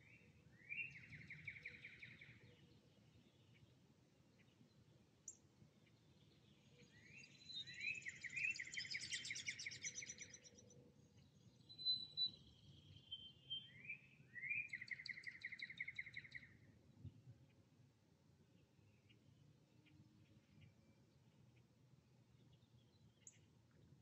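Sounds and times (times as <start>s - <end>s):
songbird trilled songs: 0.0s - 16.7s, 22.3s - 23.5s.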